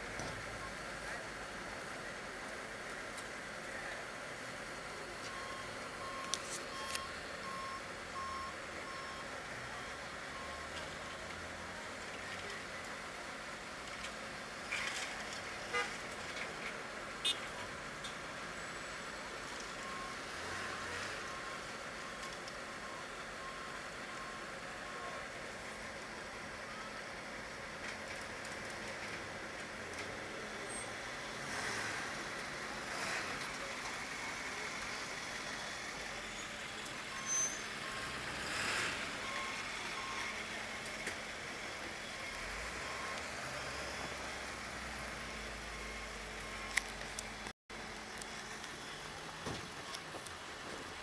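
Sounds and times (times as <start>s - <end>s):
street traffic: 0.0s - 51.0s
faint reversing alarm beeps: 5.0s - 10.9s, 18.6s - 25.3s, 37.1s - 38.2s, 39.2s - 40.4s, 42.1s - 44.3s
car horn toot: 17.2s - 17.5s.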